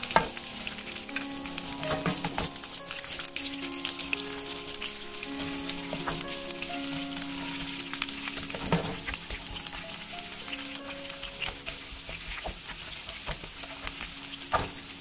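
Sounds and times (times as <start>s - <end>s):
vegetables sizzling in hot oil: 0.0s - 15.0s
wooden spatula stirring: 5.3s - 15.0s.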